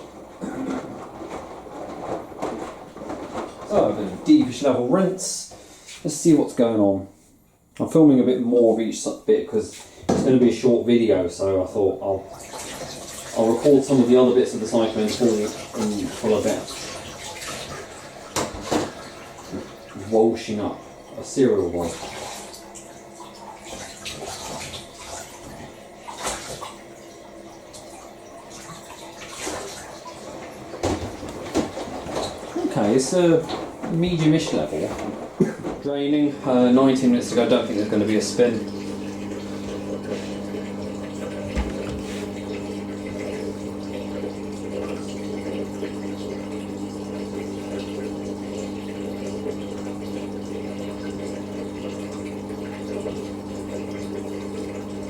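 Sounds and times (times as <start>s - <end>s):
drain pump humming: 0.0s - 7.0s, 7.8s - 55.0s
water splashing: 12.1s - 55.0s.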